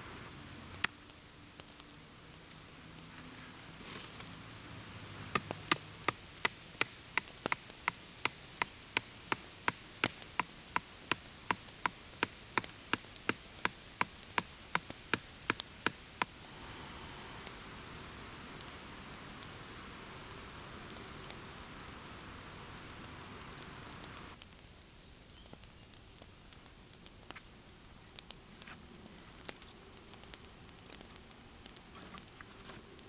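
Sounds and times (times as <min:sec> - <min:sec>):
steady hiss: 0:00.0 - 0:33.0
blade chopping wood: 0:05.2 - 0:16.4.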